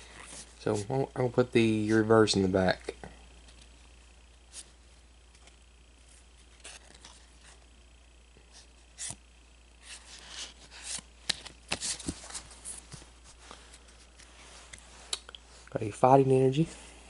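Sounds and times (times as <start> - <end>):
cards rustling and snapping: 9.8 - 15.3
cards clicking: 10.8 - 12.3.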